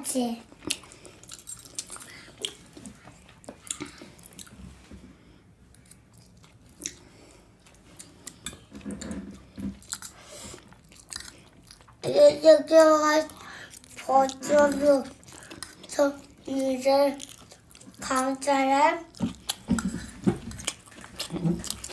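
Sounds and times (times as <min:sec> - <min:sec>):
chewing and mouth sounds: 0:00.5 - 0:04.8, 0:05.7 - 0:12.0, 0:13.2 - 0:21.9
small mouth clicks and smacks: 0:00.6 - 0:04.6.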